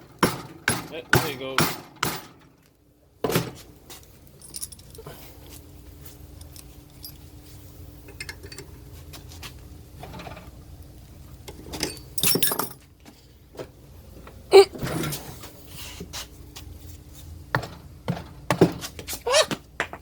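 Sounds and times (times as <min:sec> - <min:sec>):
low steady hum: 0:00.0 - 0:20.0
metal tools clinking and knocking: 0:04.4 - 0:05.3, 0:06.4 - 0:07.2, 0:08.1 - 0:08.7, 0:11.7 - 0:12.9.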